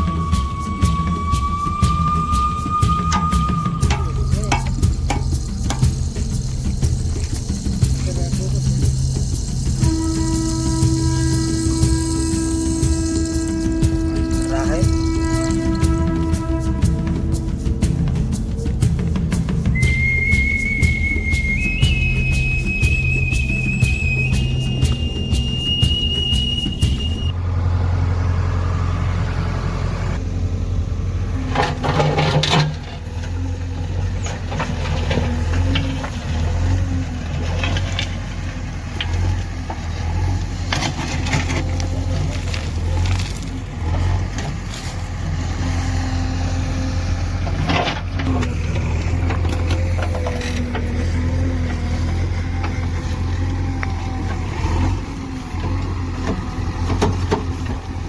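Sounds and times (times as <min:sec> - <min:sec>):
metal clanks: 0:00.0 - 0:17.2, 0:31.4 - 0:45.2
diesel engine running: 0:00.0 - 0:58.0.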